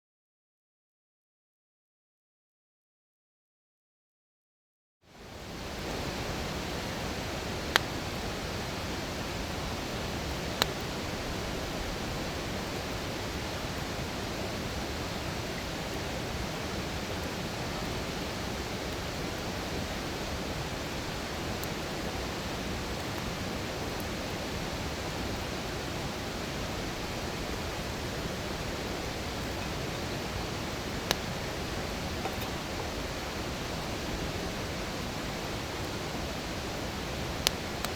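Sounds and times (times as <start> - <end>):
fire rushing hiss: 5.2 - 37.9
campfire popping: 5.7 - 13.8, 26.9 - 37.9.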